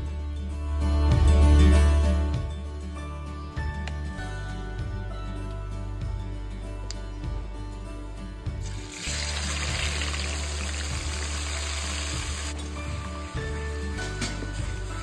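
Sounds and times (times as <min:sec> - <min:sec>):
food sizzling in hot oil: 0:08.7 - 0:13.5.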